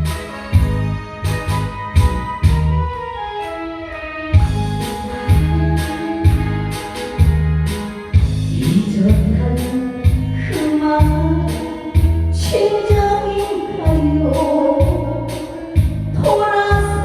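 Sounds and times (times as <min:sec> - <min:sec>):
backing track with thumping beat: 0:00.0 - 0:17.0
woman singing: 0:04.8 - 0:07.4, 0:08.5 - 0:17.0.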